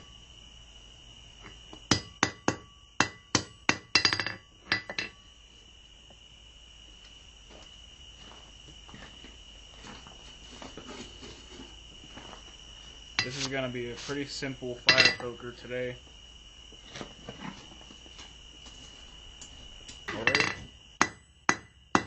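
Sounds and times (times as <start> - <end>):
hammer striking steel on anvil: 1.9 - 5.2, 14.9 - 15.3, 20.1 - 22.0.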